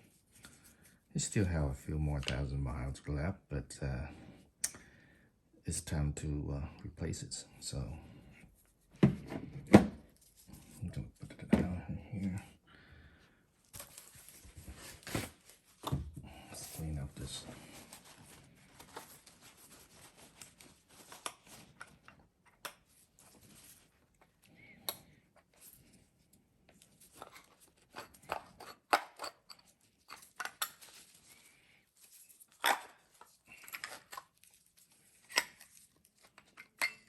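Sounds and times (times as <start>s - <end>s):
scraping and rustling: 16.6s - 22.1s.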